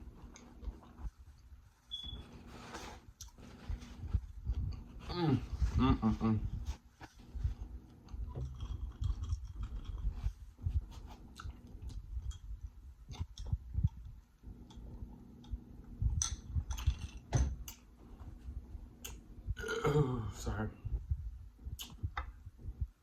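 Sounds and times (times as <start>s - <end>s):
chewing food: 0.0s - 2.1s, 7.5s - 17.8s
wet mouth clicks and smacks: 21.7s - 22.3s.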